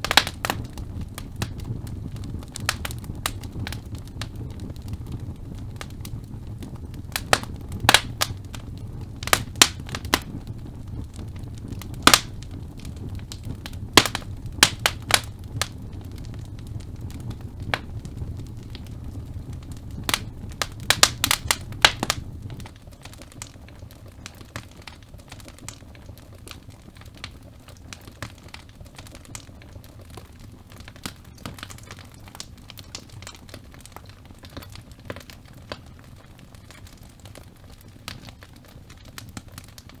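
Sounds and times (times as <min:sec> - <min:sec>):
logs crackling and popping: 0:00.0 - 0:40.0
low rumble of flame: 0:00.0 - 0:40.0.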